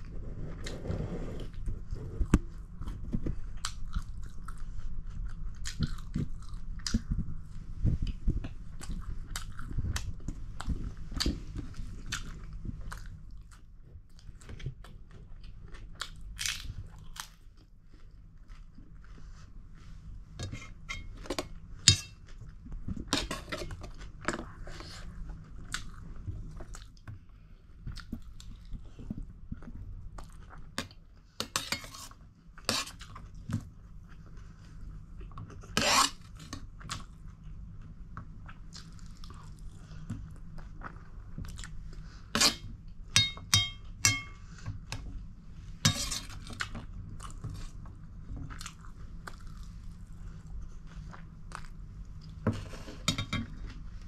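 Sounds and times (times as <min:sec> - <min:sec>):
person chewing and crunching: 0:02.3 - 0:19.1, 0:32.8 - 0:44.4, 0:46.2 - 0:54.0
spoon scraping on steel plate: 0:45.9 - 0:46.3.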